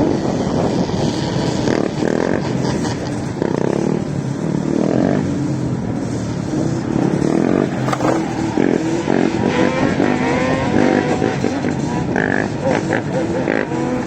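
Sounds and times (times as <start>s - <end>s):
atv engines revving: 6.5s - 9.0s.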